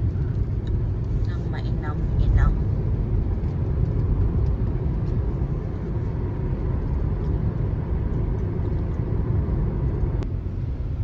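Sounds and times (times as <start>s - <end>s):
road and tyre rumble: 0.0s - 11.0s.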